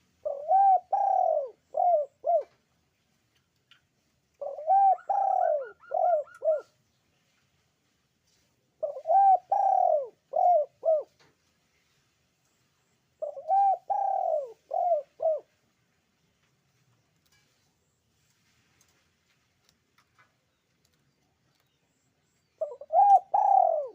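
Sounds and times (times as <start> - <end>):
dove cooing: 0.2 - 2.6, 4.4 - 6.8, 8.8 - 11.2, 13.2 - 15.6, 22.6 - 23.9.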